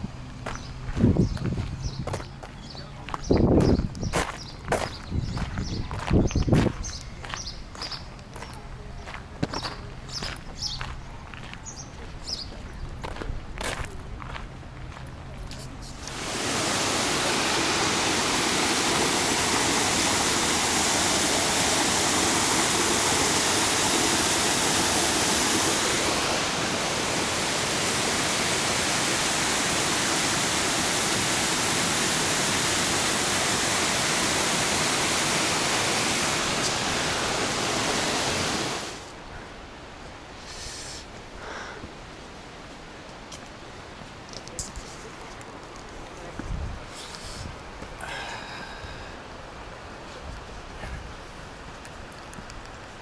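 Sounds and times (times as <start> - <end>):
waterfall roaring: 16.0 - 39.2.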